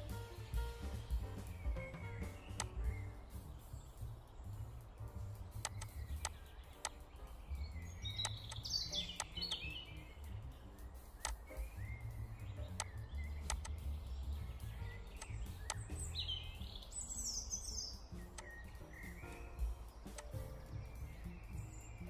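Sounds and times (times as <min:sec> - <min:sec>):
birds chirping: 0:00.0 - 0:22.0
short sharp clicks: 0:02.3 - 0:02.9, 0:05.6 - 0:07.1, 0:08.1 - 0:09.8, 0:11.0 - 0:11.6, 0:12.7 - 0:13.9, 0:15.2 - 0:16.0, 0:18.2 - 0:18.6, 0:19.3 - 0:20.5.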